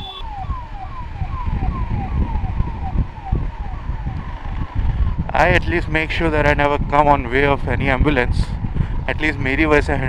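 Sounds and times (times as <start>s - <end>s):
ambulance siren wailing: 0.0s - 5.6s.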